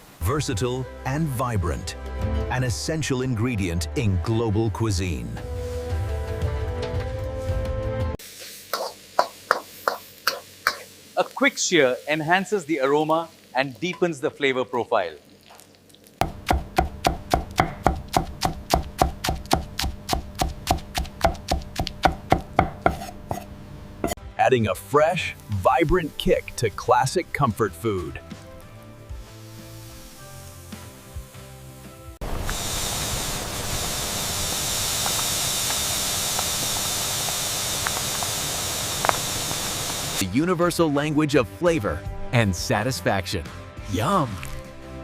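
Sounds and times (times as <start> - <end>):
food sizzling in a pan: 8.2 - 23.4, 24.9 - 40.2
knife chopping on cutting board: 16.2 - 23.5.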